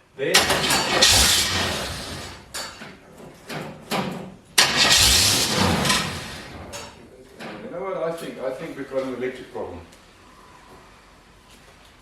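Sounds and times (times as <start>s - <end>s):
car engine firing and dying: 0.4s - 2.6s, 4.6s - 7.0s.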